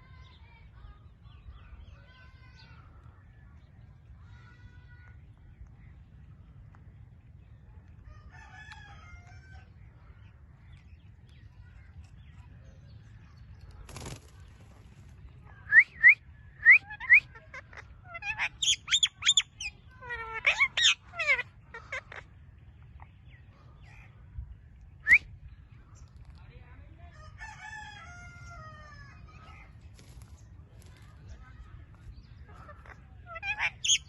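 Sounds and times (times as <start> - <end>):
parrot squawking: 16.7 - 22.2, 32.7 - 34.0.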